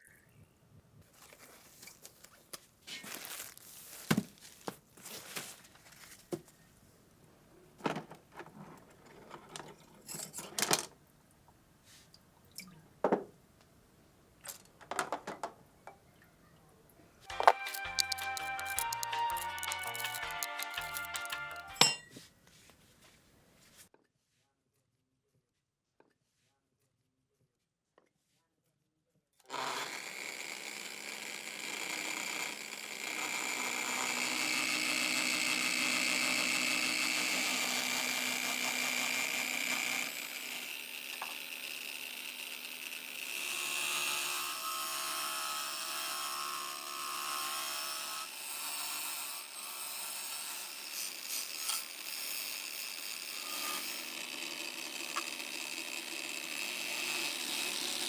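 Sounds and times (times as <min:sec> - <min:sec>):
power tool running: 0:17.3 - 0:21.8, 0:29.4 - 0:58.0.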